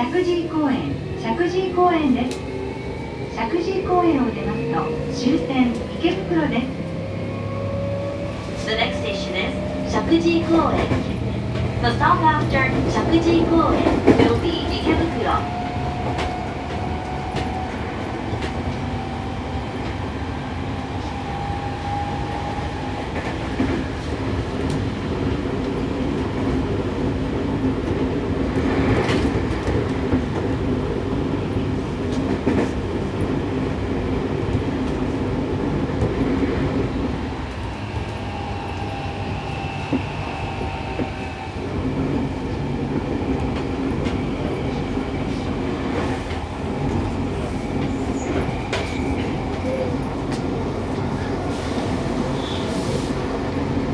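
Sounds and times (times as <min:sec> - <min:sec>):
train wheels rumbling on rail: 0:00.0 - 0:53.9
clickety-clack over rail joints: 0:08.4 - 0:19.1, 0:22.8 - 0:36.9, 0:41.8 - 0:52.6.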